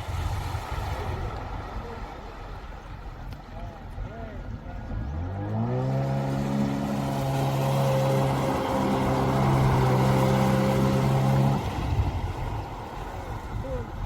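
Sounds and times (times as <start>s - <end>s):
jet ski engine at high revs: 4.5s - 14.0s.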